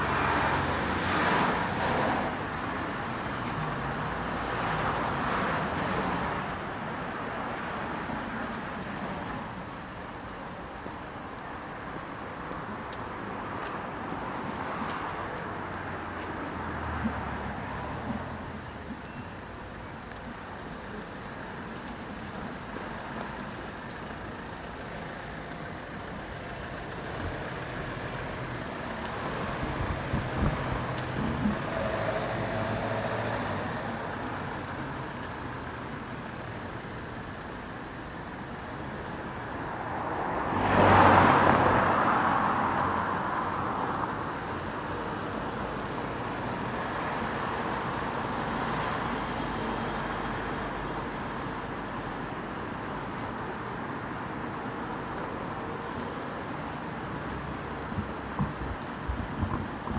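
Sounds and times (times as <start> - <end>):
road traffic noise: 0.0 - 59.9.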